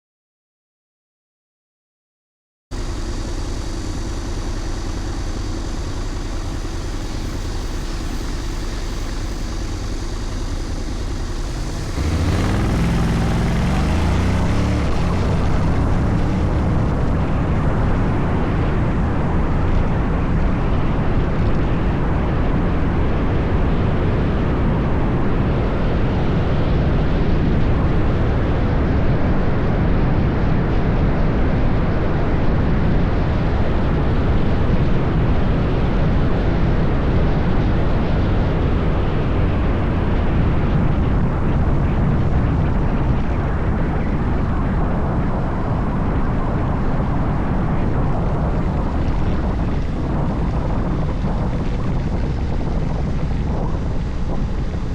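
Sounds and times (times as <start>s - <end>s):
scooter engine: 2.8s - 19.1s
wind noise while riding: 11.6s - 54.9s.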